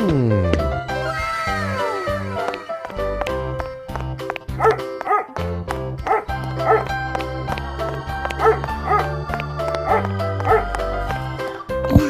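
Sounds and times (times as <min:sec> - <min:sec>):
upbeat backing music: 0:00.0 - 0:12.0
dog barking: 0:04.6 - 0:05.4, 0:06.0 - 0:06.9, 0:08.4 - 0:09.2, 0:09.8 - 0:10.8.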